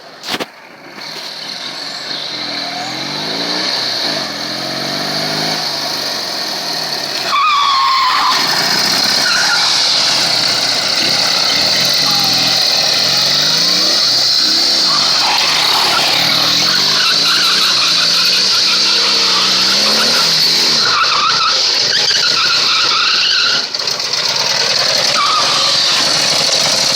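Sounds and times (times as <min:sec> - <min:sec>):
vehicle engine revving: 0:00.6 - 0:26.9.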